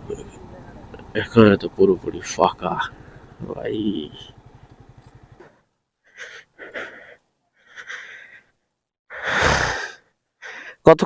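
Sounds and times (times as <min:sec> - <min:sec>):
motorcycle engine idling: 0:00.0 - 0:05.7
breathy puffs of breath: 0:02.9 - 0:03.4, 0:05.3 - 0:08.5, 0:09.1 - 0:10.8.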